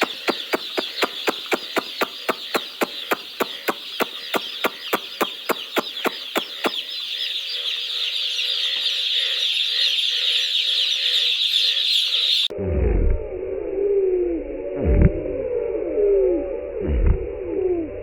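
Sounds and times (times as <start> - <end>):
regular clicking: 0.0 - 6.8
chicks cheeping: 0.0 - 12.5.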